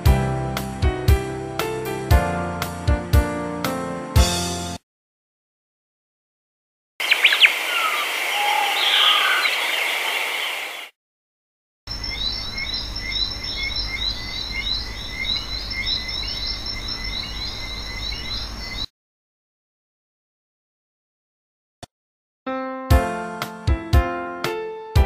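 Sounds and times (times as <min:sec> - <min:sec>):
bird gliding calls: 0:07.0 - 0:10.9
quick high bird chirps: 0:07.0 - 0:10.9.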